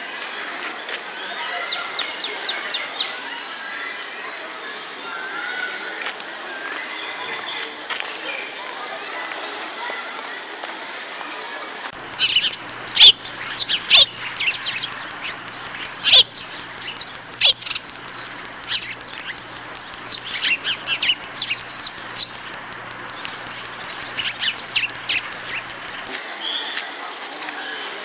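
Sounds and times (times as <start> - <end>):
birds chirping: 12.0 - 26.1
faint low hum: 12.0 - 26.1.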